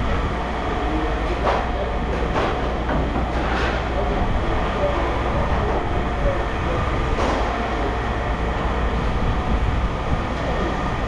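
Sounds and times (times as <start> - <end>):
mechanical rumble with low hum: 0.0 - 11.0.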